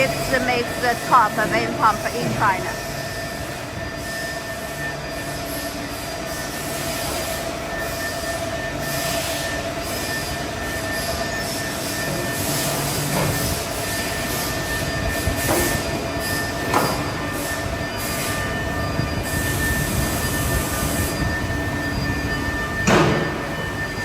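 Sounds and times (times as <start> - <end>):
machinery din: 0.0 - 2.9
whining machine tones: 0.0 - 24.0.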